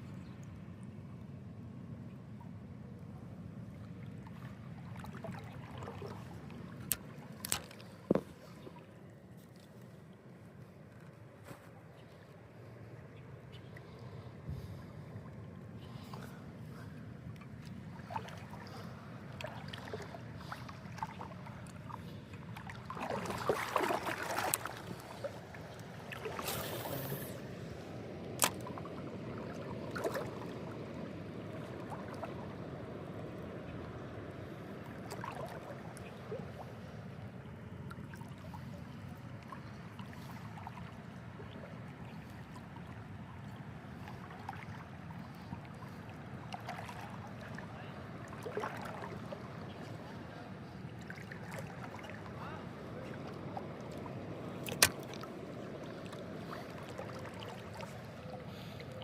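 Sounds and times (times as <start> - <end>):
river water running: 0.0 - 59.0
splashing or rustling bursts: 22.8 - 25.3, 54.6 - 55.3.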